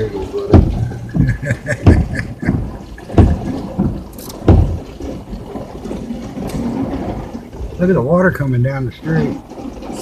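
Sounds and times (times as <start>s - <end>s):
dull thumps: 0.0s - 8.0s
heavy rain on vehicle roof: 0.0s - 10.0s.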